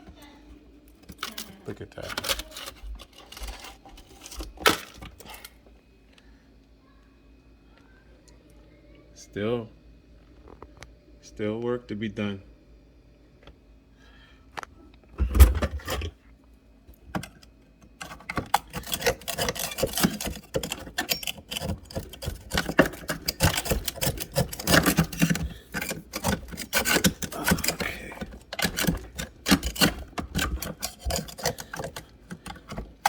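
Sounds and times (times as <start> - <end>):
ice scraping and clinking: 2.0 - 4.9, 18.0 - 33.0.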